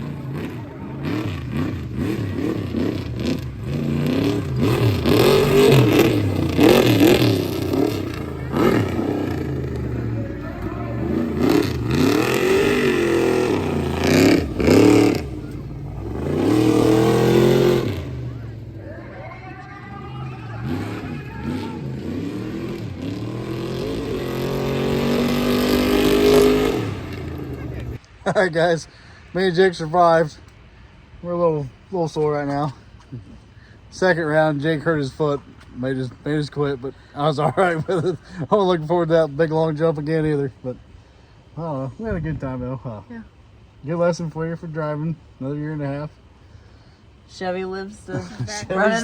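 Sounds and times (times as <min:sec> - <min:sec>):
truck engine revving: 0:00.0 - 0:28.0.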